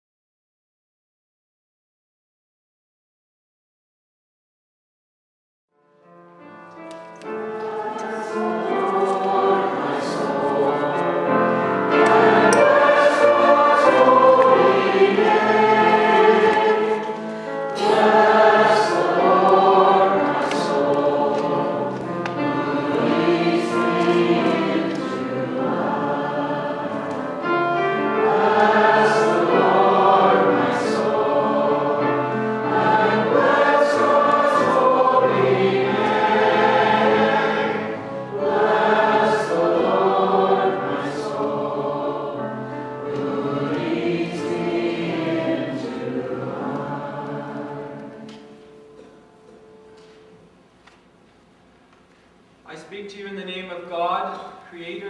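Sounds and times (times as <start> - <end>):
choir singing: 7.2 - 49.2.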